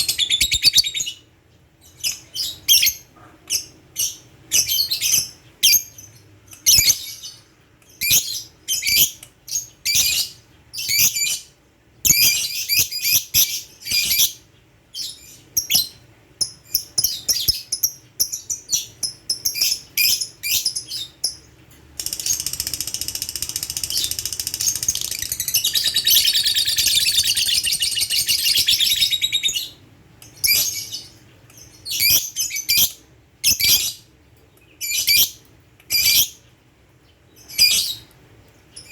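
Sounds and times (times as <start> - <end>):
lovebird chattering trill: 0.0 - 1.2, 22.0 - 29.8
lovebird chirping: 0.0 - 34.0.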